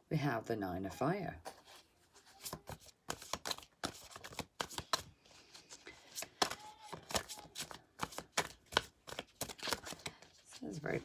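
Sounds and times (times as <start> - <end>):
cards snapping and tapping: 2.4 - 5.1, 6.1 - 10.2.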